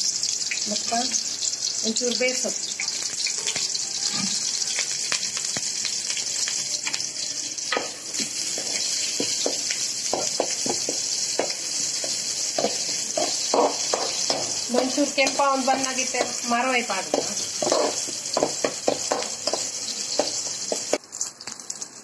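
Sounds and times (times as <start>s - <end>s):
onion sizzling in hot oil: 0.0s - 22.0s
metal spoon scraping pan: 12.0s - 18.5s.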